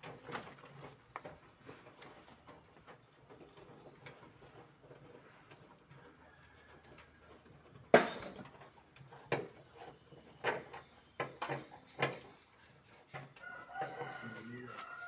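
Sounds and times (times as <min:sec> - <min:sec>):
metal tools clanking: 0:07.5 - 0:12.3.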